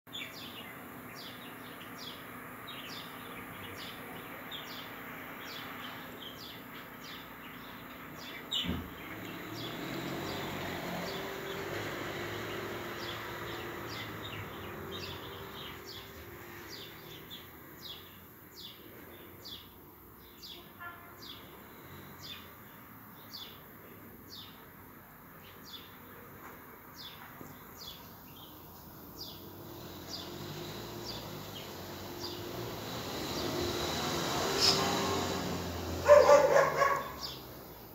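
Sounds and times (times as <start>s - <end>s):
outdoor background noise: 0.0s - 37.9s
small bird chirping: 27.0s - 35.4s.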